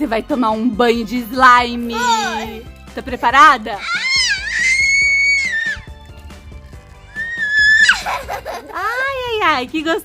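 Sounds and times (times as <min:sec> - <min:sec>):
girl screaming: 0:01.9 - 0:02.6, 0:03.8 - 0:05.9, 0:07.1 - 0:08.1
background music with beat: 0:04.4 - 0:08.6.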